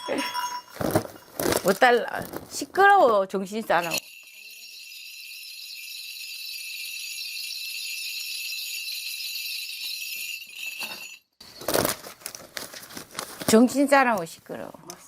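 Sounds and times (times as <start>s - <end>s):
brass bells jingling: 0.0s - 2.0s, 3.7s - 12.0s.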